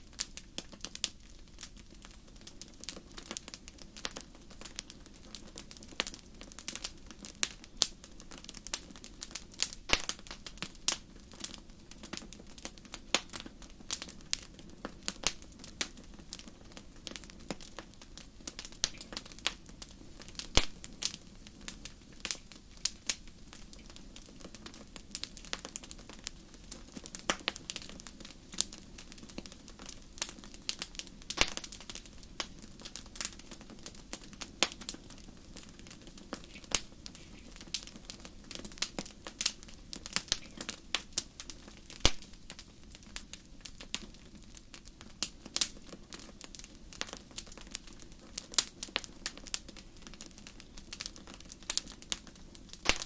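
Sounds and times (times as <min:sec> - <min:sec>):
campfire crackling: 0:00.0 - 0:53.0.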